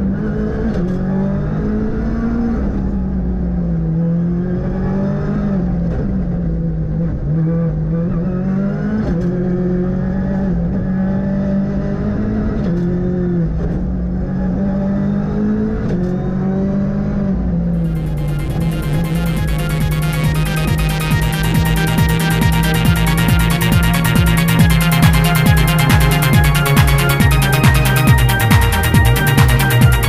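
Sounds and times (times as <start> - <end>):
rally car engine revving: 0.0 - 30.0
electronic music: 17.8 - 30.0.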